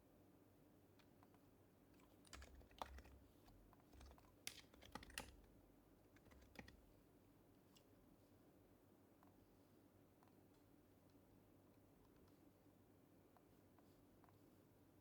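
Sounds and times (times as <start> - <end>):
faint keyboard keystrokes: 2.0 - 7.0.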